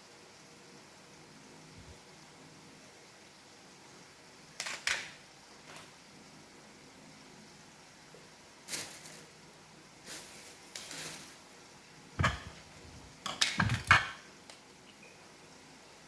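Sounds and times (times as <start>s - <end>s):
plastic parts clicking and knocking: 13.2s - 14.2s.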